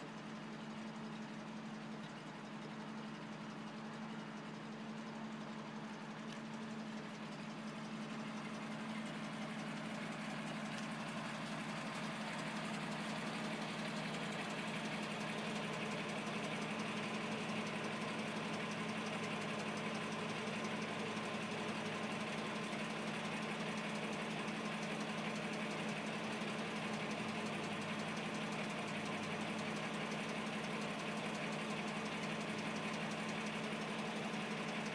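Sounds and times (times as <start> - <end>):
car engine running: 0.0 - 34.9.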